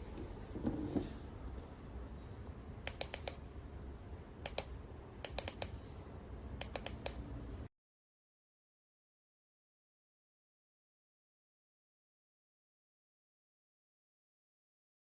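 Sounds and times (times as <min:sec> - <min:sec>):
sharp light clicks: 0:02.8 - 0:03.4, 0:04.4 - 0:05.8, 0:06.6 - 0:07.2.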